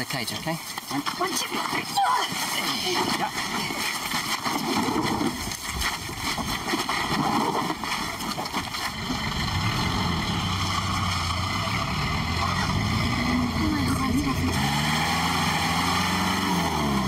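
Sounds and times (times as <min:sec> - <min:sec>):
vehicle engine idling: 0:08.8 - 0:17.0.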